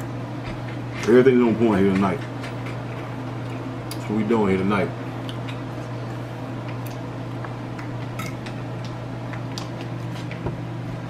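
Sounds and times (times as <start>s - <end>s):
steady low hum: 0.0s - 11.0s
man chewing food: 2.2s - 4.1s, 5.0s - 10.7s.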